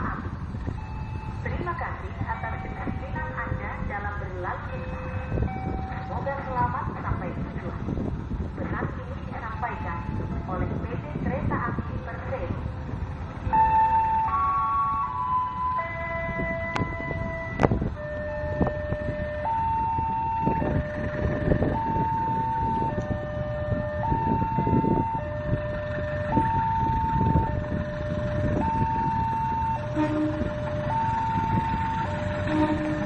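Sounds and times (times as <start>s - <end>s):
level crossing alarm two-tone signal: 28.5s - 33.0s.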